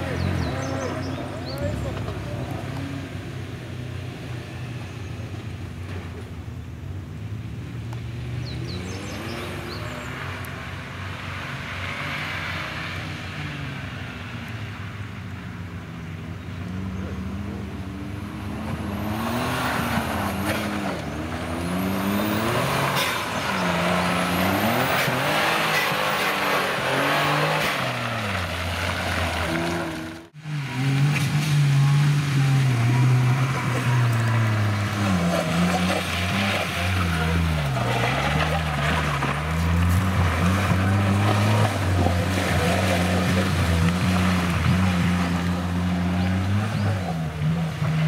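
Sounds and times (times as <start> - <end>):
car engine revving: 8.1 - 14.9, 16.4 - 48.0.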